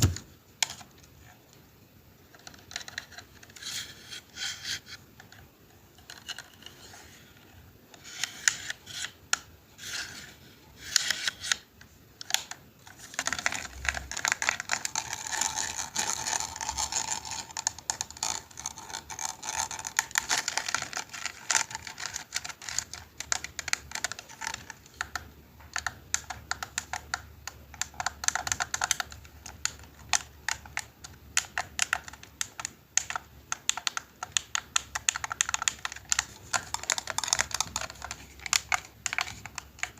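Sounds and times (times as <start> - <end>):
keys clicking and tapping: 25.7 - 39.9.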